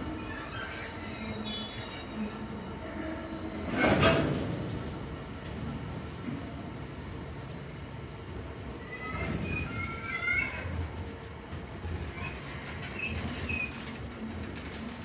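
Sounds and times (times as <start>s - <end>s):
high wheel squeal: 0.0s - 3.2s
freight train wheels rumbling: 0.0s - 15.0s.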